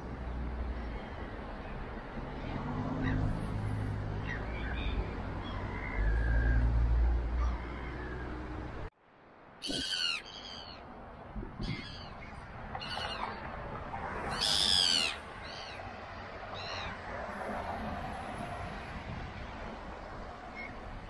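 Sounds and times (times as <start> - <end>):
bird calling: 9.6 - 10.9, 14.3 - 15.8.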